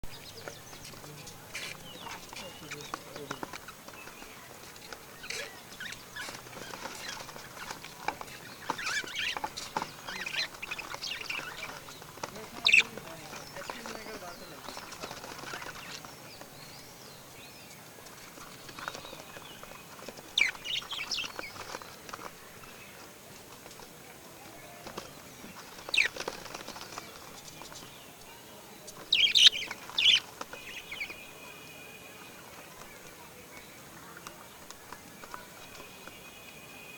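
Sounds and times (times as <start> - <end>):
birds chirping and squeaking: 0.1 - 23.9, 24.6 - 36.6
bird calling loudly: 5.2 - 14.6, 29.0 - 31.5.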